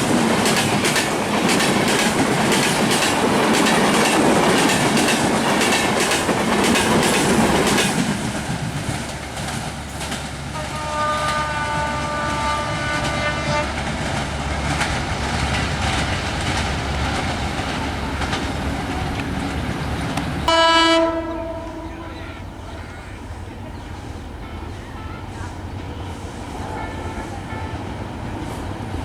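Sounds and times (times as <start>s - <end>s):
train wheels clicking over rail joints: 0.0s - 10.7s, 12.4s - 29.0s
train rumble: 0.0s - 29.0s
train horn: 10.5s - 14.0s, 20.4s - 23.4s, 24.4s - 28.6s.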